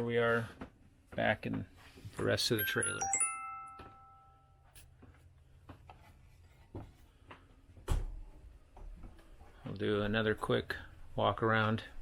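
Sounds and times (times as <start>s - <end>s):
ringing chime: 2.6s - 4.7s.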